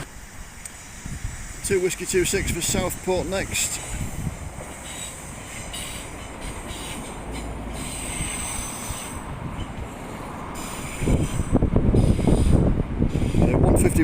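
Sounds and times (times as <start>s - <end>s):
diesel train rumbling past: 0.0s - 14.0s
wheel squeal: 4.8s - 10.0s, 10.6s - 13.6s.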